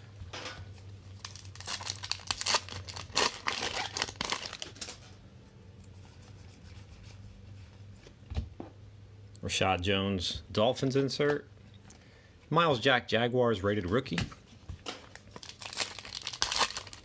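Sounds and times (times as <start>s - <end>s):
steady low hum: 0.0s - 14.8s
foil wrappers crinkling and tearing: 1.1s - 5.2s, 15.0s - 17.0s.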